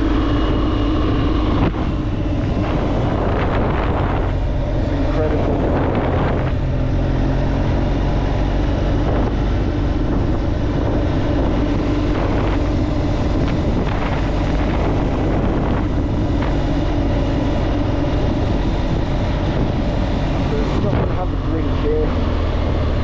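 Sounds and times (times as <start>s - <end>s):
motorcycle engine running: 0.0s - 23.0s
road noise: 0.0s - 23.0s
wind noise: 0.0s - 23.0s.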